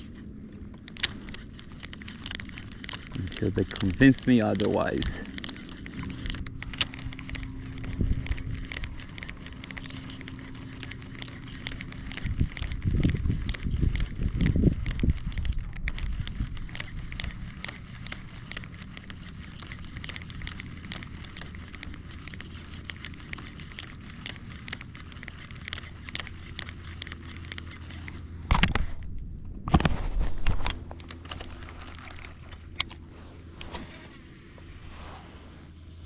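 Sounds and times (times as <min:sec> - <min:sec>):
low steady hum: 0:00.0 - 0:36.0
fishing reel clicking: 0:00.8 - 0:28.2.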